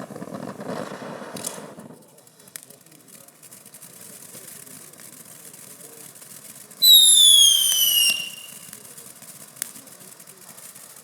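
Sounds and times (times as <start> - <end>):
firework whistle shrieking: 6.8 - 8.7.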